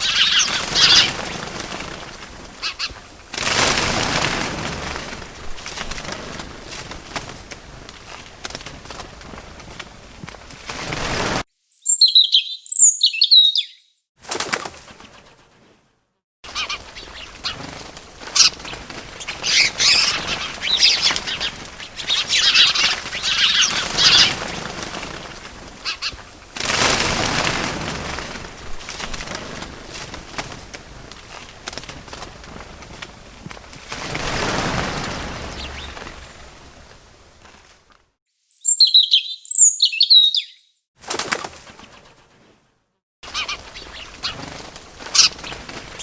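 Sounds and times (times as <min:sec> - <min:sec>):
birds chirping: 0:00.0 - 0:03.0, 0:11.6 - 0:14.0, 0:16.5 - 0:25.2, 0:34.1 - 0:36.9, 0:38.4 - 0:40.8, 0:43.3 - 0:46.0
wings flapping: 0:00.0 - 0:11.5, 0:14.2 - 0:15.8, 0:16.5 - 0:38.2, 0:41.0 - 0:46.0.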